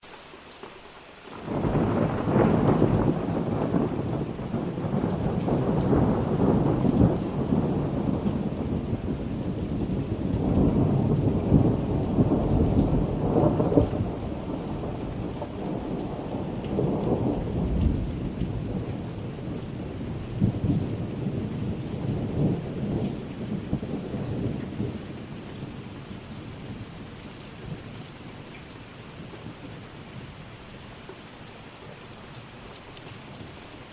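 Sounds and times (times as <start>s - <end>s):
heavy rain: 0.0s - 33.9s
thunder rumbling: 1.4s - 28.0s.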